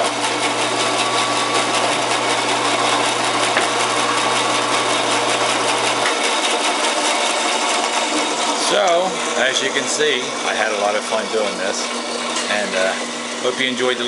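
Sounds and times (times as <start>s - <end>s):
bandsaw whirring: 0.0s - 14.0s.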